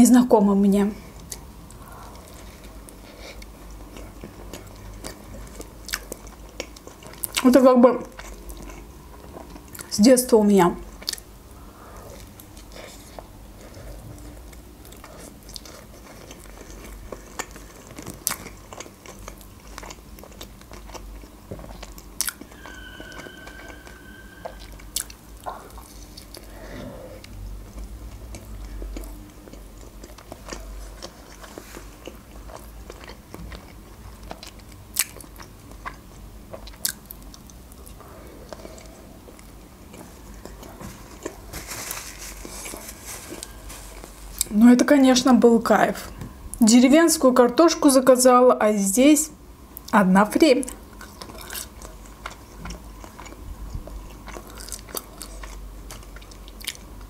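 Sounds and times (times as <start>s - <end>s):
person biting and chewing: 54.1s - 56.9s.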